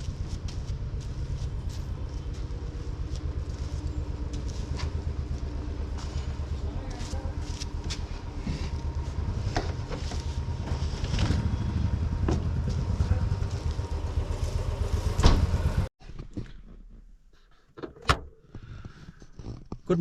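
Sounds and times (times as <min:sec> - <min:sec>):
vehicle low rumble: 0:00.0 - 0:20.0.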